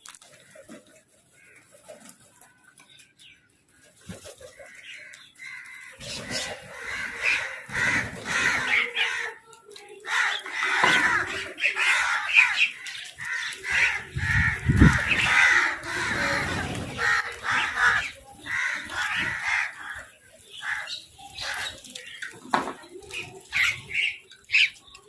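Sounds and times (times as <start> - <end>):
crows cawing: 4.6 - 9.4, 10.0 - 21.7.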